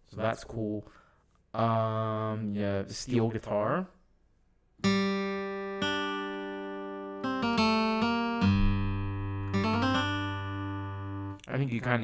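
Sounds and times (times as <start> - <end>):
steel guitar notes and chords: 4.8 - 11.4.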